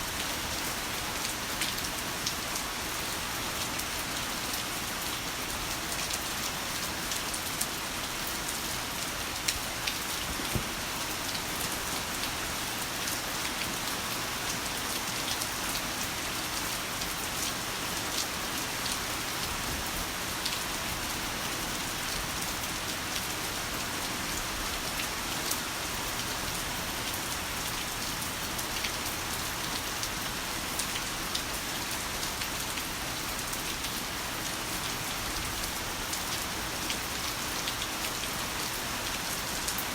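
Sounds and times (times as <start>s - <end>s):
heavy rain: 0.0s - 39.9s
raindrops pattering: 9.2s - 12.4s.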